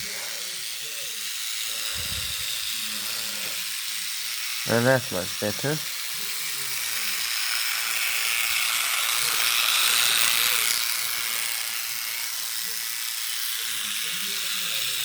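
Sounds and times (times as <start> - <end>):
toy train motors whirring: 0.0 - 15.0.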